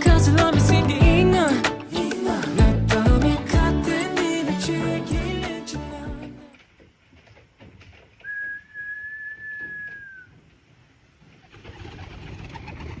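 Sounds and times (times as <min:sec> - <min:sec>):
long steady whistle: 0:08.2 - 0:10.4.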